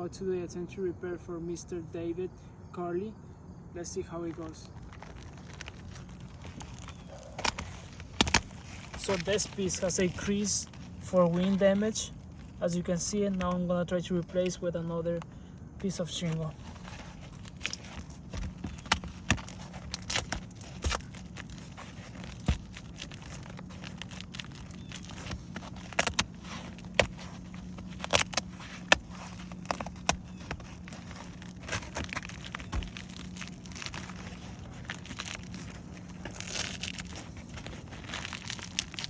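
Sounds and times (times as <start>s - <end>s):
steady low hum: 0.0s - 39.0s
roof shingles clicking and scraping: 4.4s - 14.6s, 16.1s - 39.0s.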